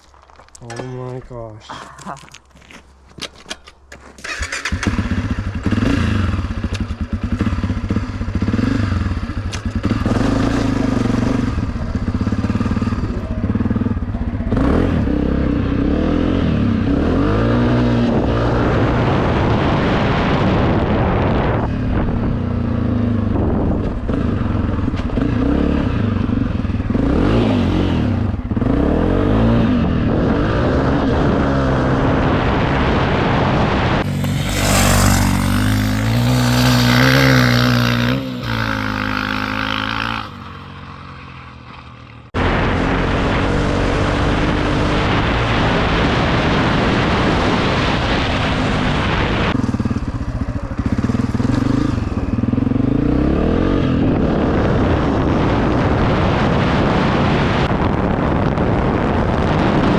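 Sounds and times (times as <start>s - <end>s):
dirt bike engine revving: 4.2s - 13.9s, 34.0s - 47.1s.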